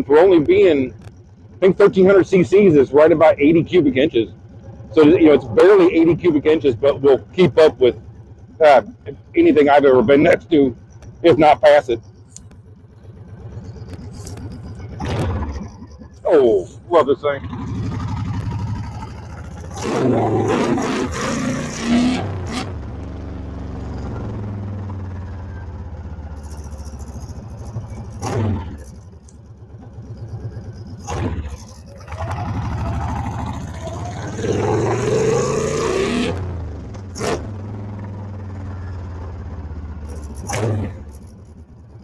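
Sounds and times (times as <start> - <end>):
motorcycle engine running: 0.0 - 42.0
sharp clicks: 12.2 - 16.3.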